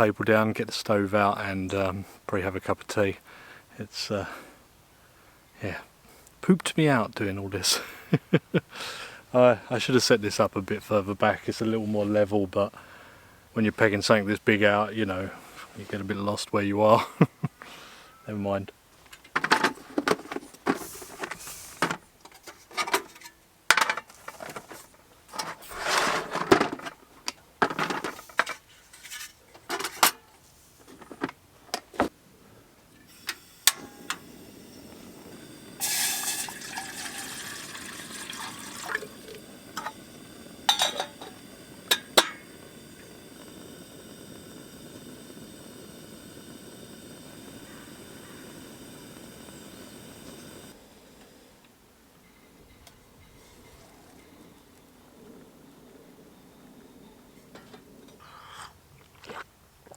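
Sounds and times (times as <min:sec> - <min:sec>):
stove burner hissing: 0:01.1 - 0:18.3, 0:19.1 - 0:22.0, 0:30.8 - 0:52.0
water poured into a kettle: 0:33.1 - 0:46.1
cookware knocking and clinking: 0:40.7 - 0:42.4.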